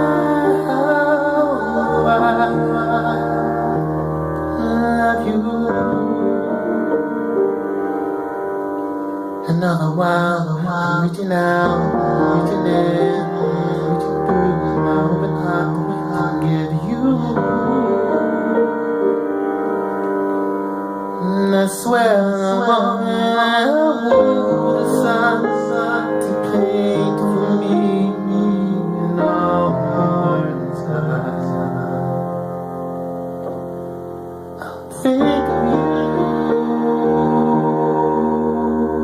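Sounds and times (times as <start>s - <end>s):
wavering gliding melody: 0.0s - 9.5s, 24.0s - 39.0s
piano chords: 0.0s - 39.0s.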